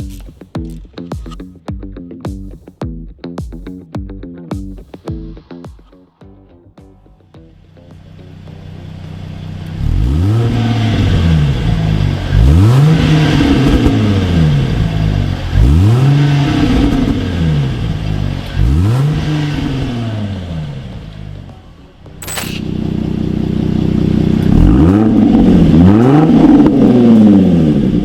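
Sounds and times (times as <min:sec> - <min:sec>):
car engine revving: 0:07.6 - 0:21.6, 0:22.4 - 0:28.0.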